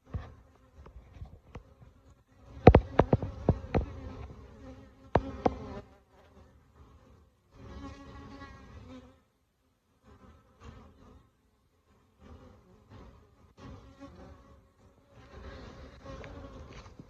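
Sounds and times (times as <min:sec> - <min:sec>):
honeybee colony buzzing: 0:00.0 - 0:09.3, 0:10.0 - 0:17.0
sharp knocks: 0:02.6 - 0:03.9.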